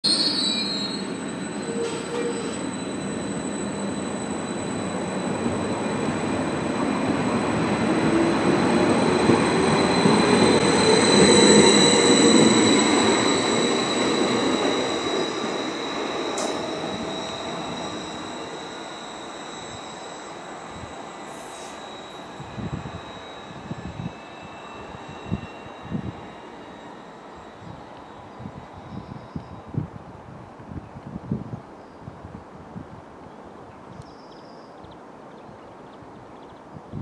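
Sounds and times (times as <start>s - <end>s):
high-pitched train whine: 0.0s - 31.2s
train wheels rumbling: 0.6s - 30.0s.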